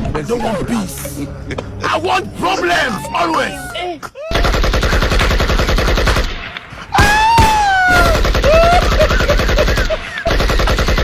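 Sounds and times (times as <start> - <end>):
rapid automatic gunfire: 4.3 - 6.4, 8.0 - 11.0.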